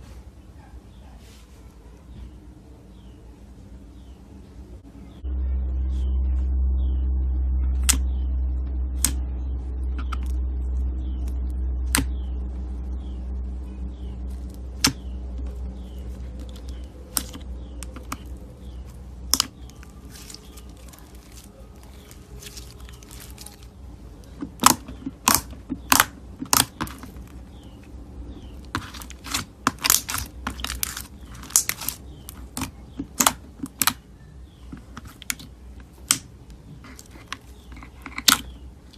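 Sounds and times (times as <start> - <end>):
low rumble: 2.4 - 38.9
slime clicking and popping: 19.3 - 21.5, 24.4 - 27.1, 28.7 - 34.0, 34.9 - 36.3.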